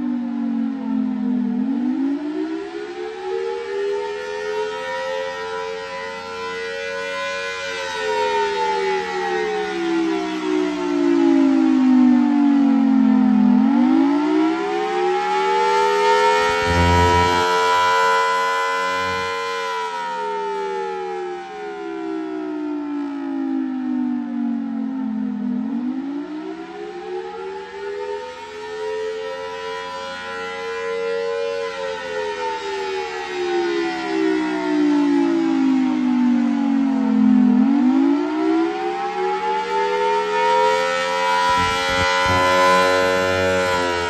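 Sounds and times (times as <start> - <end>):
warning siren wailing: 0.0 - 44.0
outdoor warning siren winding: 15.2 - 20.3, 40.7 - 44.0.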